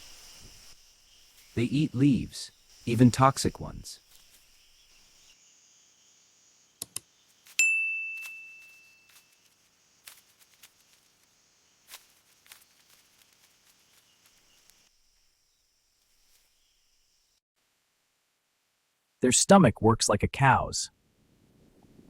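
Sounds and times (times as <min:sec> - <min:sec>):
high insect-like hiss: 0:00.0 - 0:17.4
sharp clicks: 0:06.8 - 0:07.1
bright ringing ding: 0:07.6 - 0:09.1.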